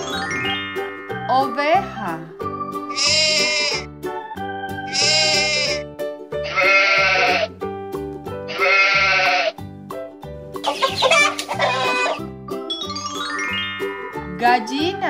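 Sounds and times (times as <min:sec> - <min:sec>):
upbeat children's music: 0:00.0 - 0:15.0
sheep bleating: 0:02.9 - 0:03.9, 0:04.9 - 0:05.8, 0:06.5 - 0:07.5, 0:08.5 - 0:09.6.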